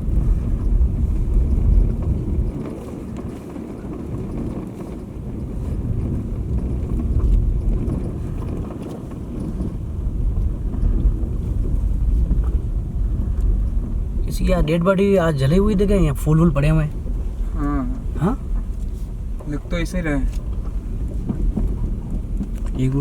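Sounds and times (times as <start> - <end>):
car rumbling on the move: 0.0 - 23.0
wind buffeting microphone: 0.0 - 23.0.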